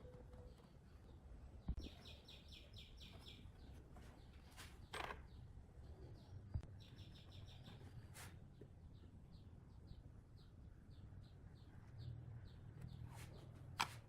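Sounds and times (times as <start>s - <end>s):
small songbird chirping: 1.6s - 8.1s.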